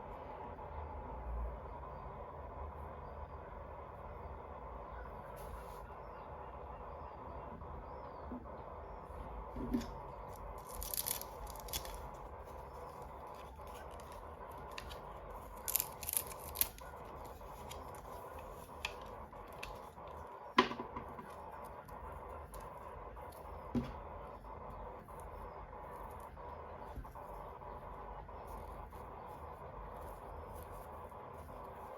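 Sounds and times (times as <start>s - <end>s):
faint steady hum: 0.0s - 31.9s
packaging clicks and scrapes: 9.8s - 20.3s
packaging tearing: 10.3s - 20.2s.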